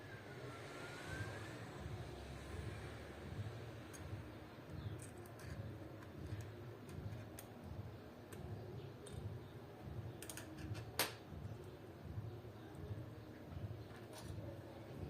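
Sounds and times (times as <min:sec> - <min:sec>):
small repair tools clicking: 0:10.2 - 0:11.2.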